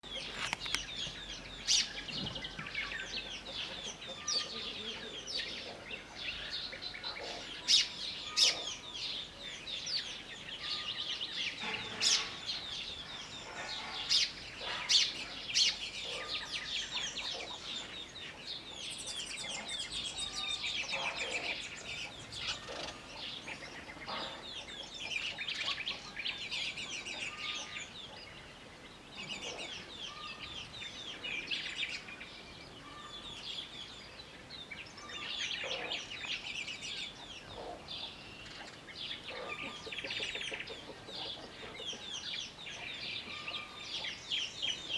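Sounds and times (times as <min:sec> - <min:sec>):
baby chicks peeping: 0:00.0 - 0:09.3, 0:09.9 - 0:32.0, 0:35.5 - 0:44.9
sparrows chirping: 0:00.0 - 0:44.9.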